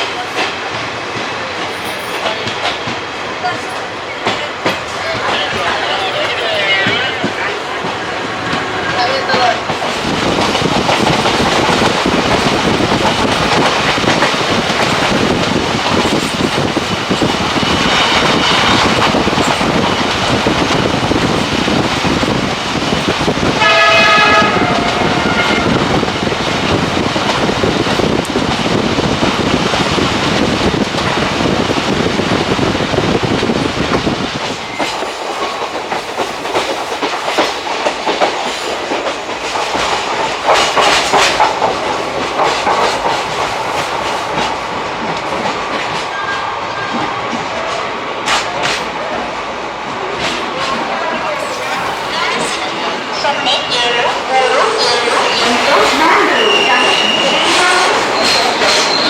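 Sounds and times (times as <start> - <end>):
train rumble: 0.0 - 59.0
train wheels clacking: 0.0 - 59.0
locomotive horn: 23.6 - 25.9.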